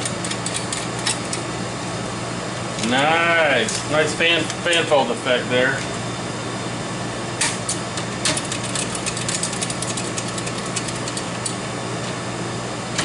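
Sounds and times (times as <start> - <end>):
quick clicks and crackles: 7.7 - 11.6.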